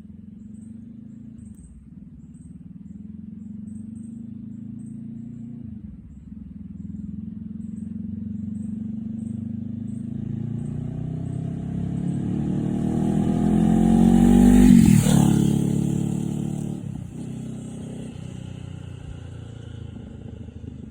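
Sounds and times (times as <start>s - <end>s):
motorcycle engine pulling hard: 7.6s - 20.9s.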